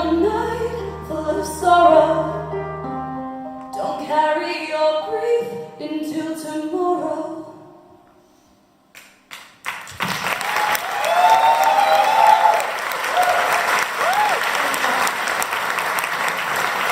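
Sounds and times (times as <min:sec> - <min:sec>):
audience applause: 0:09.6 - 0:16.9.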